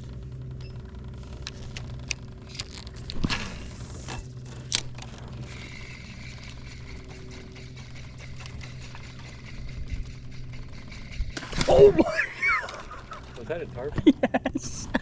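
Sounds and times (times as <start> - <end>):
steady low hum: 0.0 - 15.0
gear scraping and rattling in boat: 1.0 - 13.9
gear knocking: 1.2 - 11.9.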